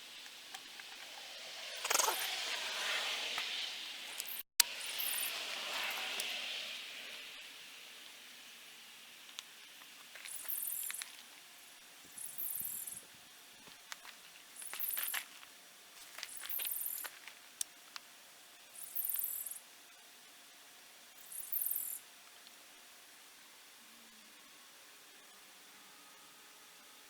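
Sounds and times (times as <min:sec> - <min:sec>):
insect calling in high bursts: 0:01.1 - 0:09.1, 0:10.2 - 0:11.0, 0:12.2 - 0:13.0, 0:16.3 - 0:17.1, 0:18.8 - 0:19.6, 0:21.2 - 0:22.1.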